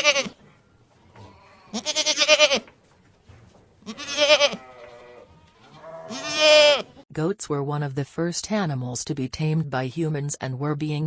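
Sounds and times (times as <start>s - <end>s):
goat bleating: 0.0s - 0.4s, 1.2s - 2.7s, 3.8s - 7.0s.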